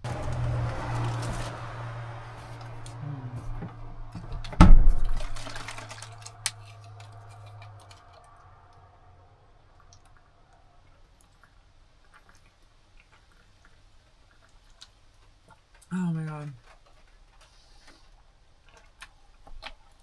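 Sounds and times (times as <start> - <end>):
vehicle engine idling: 0.0 - 10.5.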